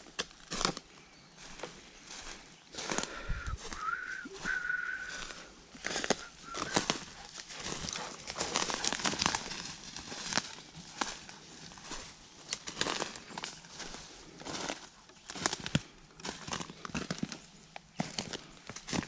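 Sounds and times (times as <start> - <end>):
footsteps crunching dry leaves: 0.0 - 19.0
high steady whistle: 3.3 - 7.0.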